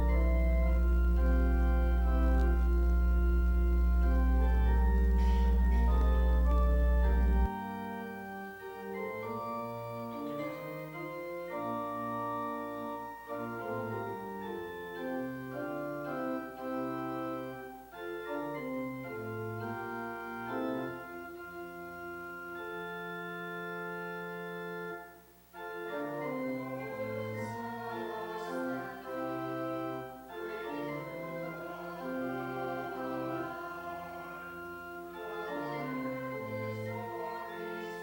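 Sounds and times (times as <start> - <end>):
organ playing a hymn: 0.0 - 38.0.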